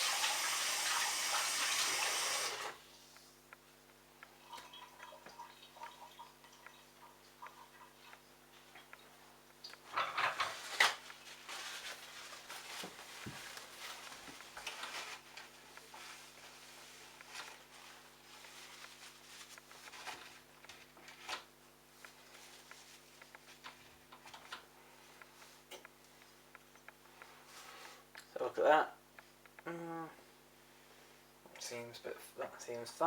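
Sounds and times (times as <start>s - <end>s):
faint steady hum: 0.0s - 33.0s
hands rustling and scraping: 10.3s - 21.4s.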